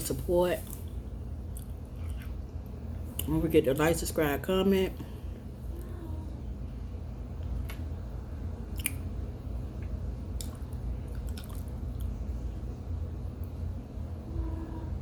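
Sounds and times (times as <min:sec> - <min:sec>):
low steady hum: 0:00.0 - 0:15.0
wet chewing with squishes: 0:00.6 - 0:02.4, 0:08.7 - 0:09.1, 0:09.8 - 0:12.3.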